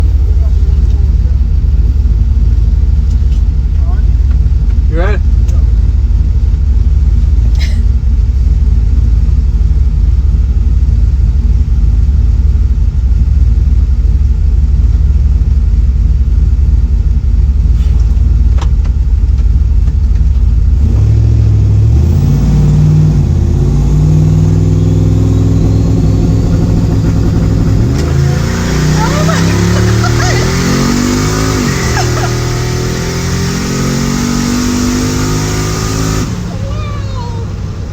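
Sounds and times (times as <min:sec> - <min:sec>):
truck engine accelerating: 0:00.0 - 0:37.9.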